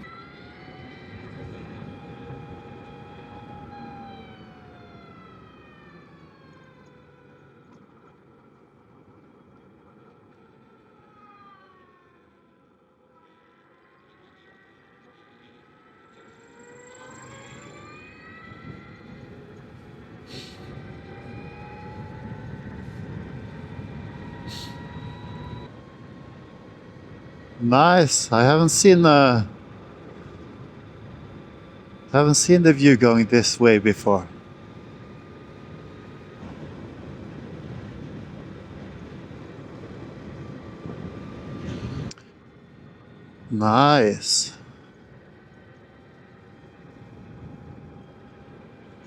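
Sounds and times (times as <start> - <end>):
electric motor whine: 0.0 - 7.6, 13.2 - 25.7
faint high whine: 13.2 - 25.7, 27.6 - 36.6, 42.9 - 44.7.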